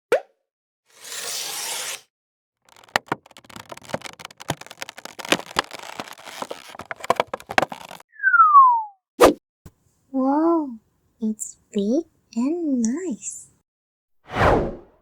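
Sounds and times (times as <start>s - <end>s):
cardboard and plastic crinkling: 2.7s - 8.0s
falling whistle sound effect: 8.1s - 9.0s
short whoosh: 14.3s - 14.9s.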